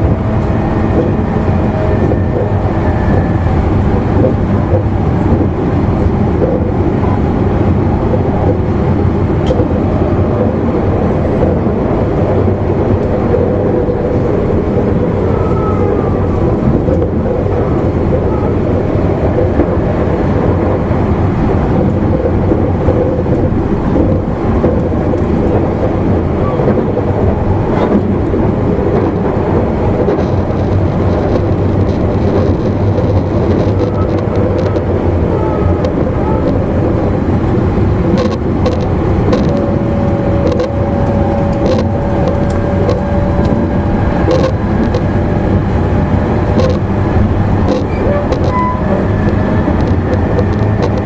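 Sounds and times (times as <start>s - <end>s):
train wheels rumbling on rails: 0.0s - 51.0s
steady whine: 25.0s - 51.0s.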